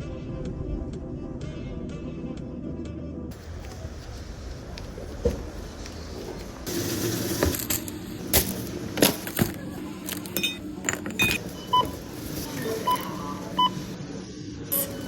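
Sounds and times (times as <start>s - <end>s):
small objects clinking and knocking: 6.7s - 13.2s, 14.7s - 15.0s
short electronic beeps: 11.2s - 14.0s.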